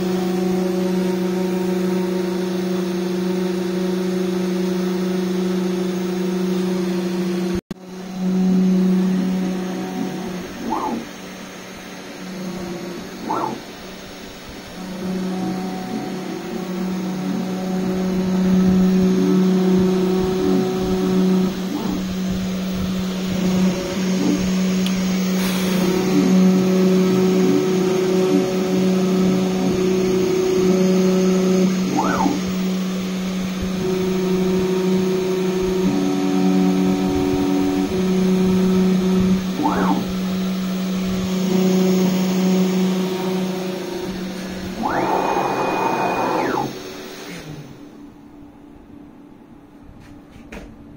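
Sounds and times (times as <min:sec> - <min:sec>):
router motor whine: 0:00.0 - 0:48.2
high-pitched axis move whine: 0:07.8 - 0:33.0, 0:35.8 - 0:48.0.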